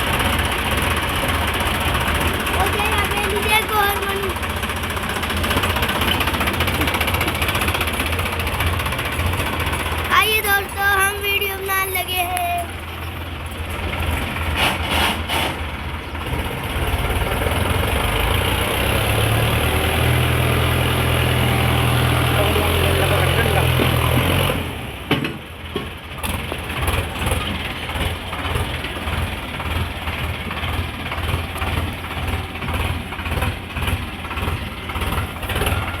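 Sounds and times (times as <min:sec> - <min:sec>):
tractor engine knocking: 0:00.0 - 0:36.0
high voice: 0:02.5 - 0:04.4, 0:10.1 - 0:12.8.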